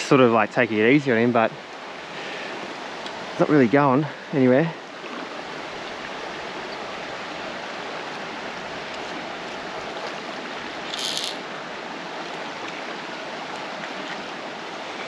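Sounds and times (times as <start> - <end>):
creek water running: 0.0 - 15.0
high rattle: 10.9 - 11.4.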